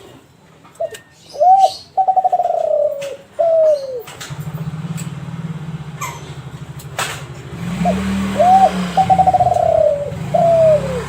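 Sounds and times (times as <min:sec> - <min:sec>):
dove cooing: 0:00.8 - 0:04.2, 0:07.8 - 0:11.0.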